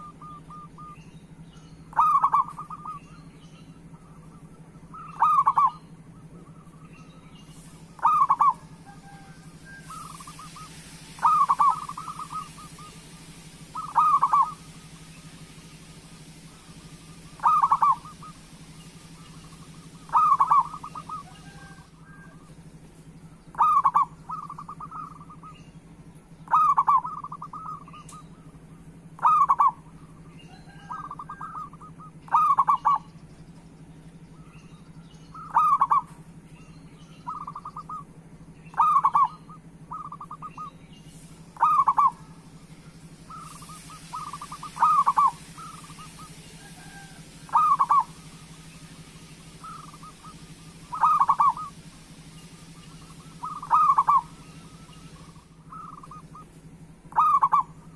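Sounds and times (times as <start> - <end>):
dove cooing: 0.0 - 1.0, 1.9 - 3.2, 3.9 - 6.8, 7.5 - 15.6, 16.2 - 22.6, 23.5 - 25.6, 26.4 - 33.1, 35.3 - 36.2, 37.3 - 38.1, 38.7 - 57.9
faint steady hum: 0.0 - 57.9.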